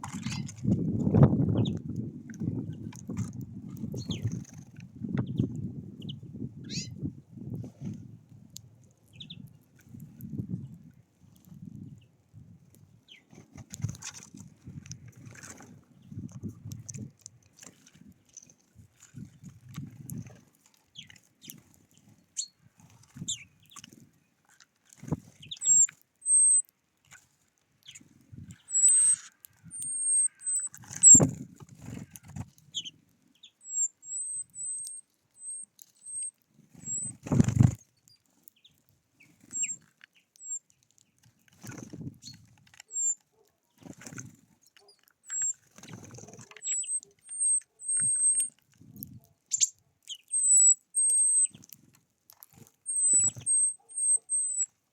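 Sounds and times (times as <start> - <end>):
small birds high-pitched calls: 3.9 - 4.6, 5.2 - 7.0, 20.9 - 23.8, 25.4 - 26.7, 27.8 - 31.3, 32.0 - 37.3, 37.9 - 41.3, 42.2 - 43.9, 44.8 - 48.6, 49.5 - 51.7, 52.8 - 54.8
wing flutters: 27.9 - 32.6, 36.1 - 37.8, 41.5 - 48.5
soft knocks of birds pecking: 36.6 - 47.2.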